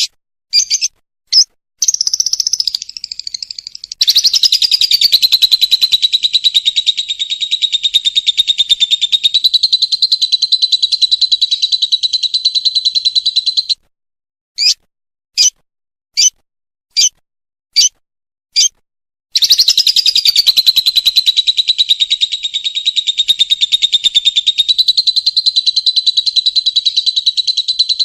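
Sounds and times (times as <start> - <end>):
lovebird rattling trill: 0.6 - 13.8, 19.4 - 28.0.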